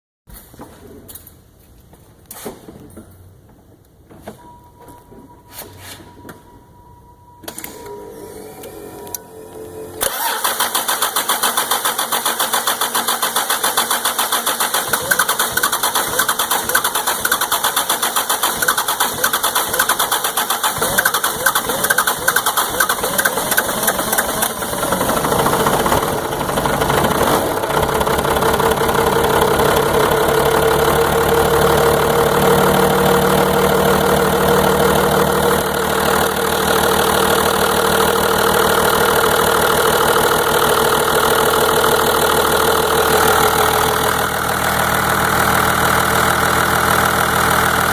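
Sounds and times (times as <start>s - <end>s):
engine cranking on starter: 10.0s - 47.9s
engine idling: 10.0s - 47.9s.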